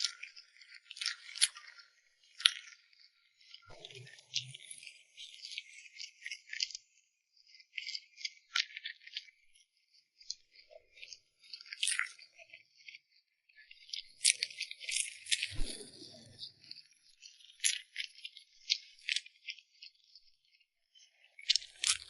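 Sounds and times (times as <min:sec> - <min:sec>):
high-pitched crackling and rustling: 0:21.4 - 0:22.0.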